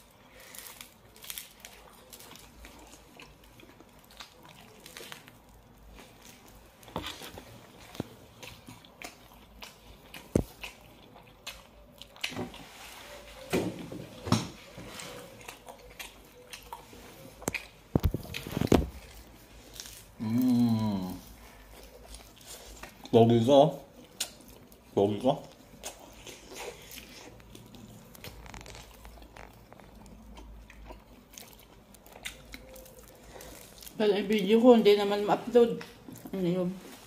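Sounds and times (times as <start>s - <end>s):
people biting and chewing: 0.0s - 12.9s, 14.1s - 34.6s
person humming: 20.2s - 21.2s.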